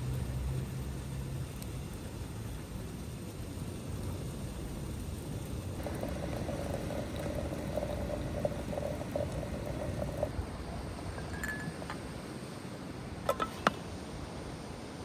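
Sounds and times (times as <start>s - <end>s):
faint wavering hiss: 0.0s - 15.0s
liquid bubbling in a pot: 0.1s - 11.2s.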